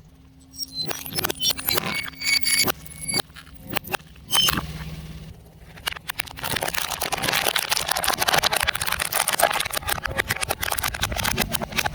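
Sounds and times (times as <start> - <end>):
car tyre crushing brittle objects: 6.0 - 11.3.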